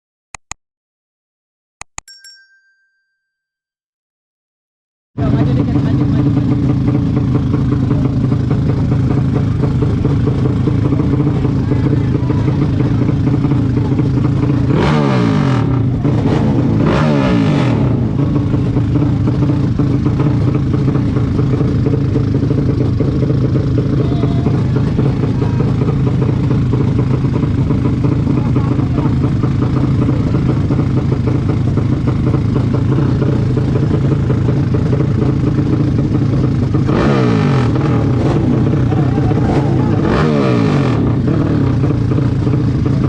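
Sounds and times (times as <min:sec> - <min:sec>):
vehicle engine revving: 0:05.2 - 0:43.0.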